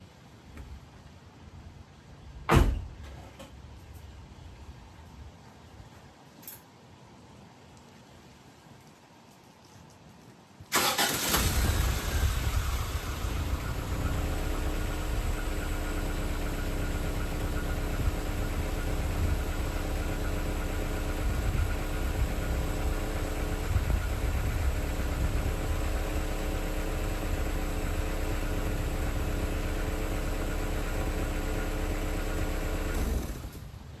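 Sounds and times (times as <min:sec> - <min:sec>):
van engine starting and idling: 0:10.7 - 0:34.0.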